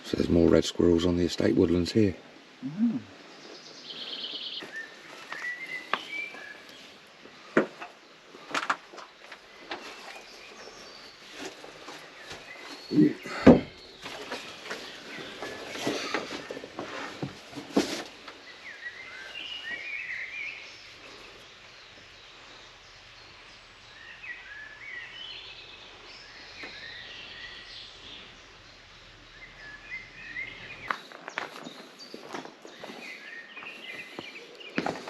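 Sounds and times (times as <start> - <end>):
small songbirds twittering: 0.0 - 35.0
footsteps: 30.8 - 35.0.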